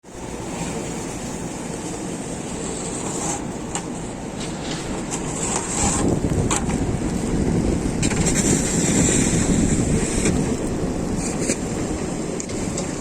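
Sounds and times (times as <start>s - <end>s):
steady low rumble: 0.0s - 13.0s
wind on microphone: 4.4s - 13.0s.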